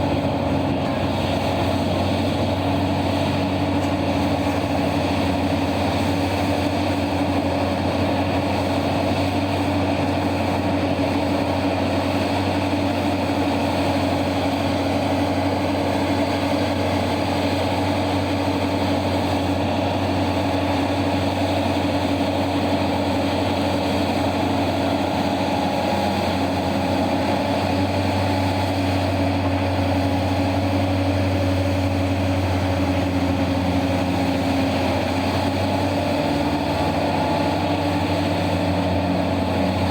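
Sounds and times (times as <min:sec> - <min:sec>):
large diesel engines droning: 0:00.0 - 0:39.9.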